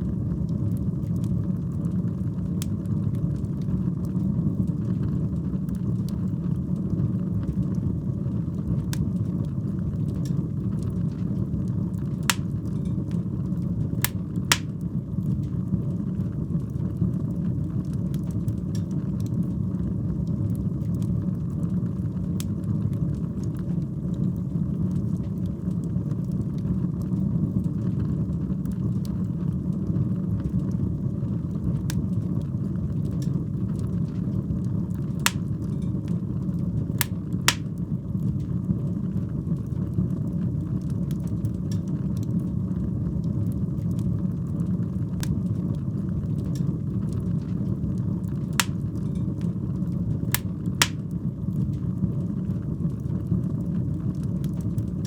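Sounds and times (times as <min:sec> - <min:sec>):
fire burning with crackles: 0:00.0 - 0:55.0
sharp pops of fire: 0:12.3 - 0:12.6, 0:14.0 - 0:14.8, 0:35.3 - 0:35.6, 0:37.0 - 0:37.8, 0:48.6 - 0:49.0, 0:50.4 - 0:51.1.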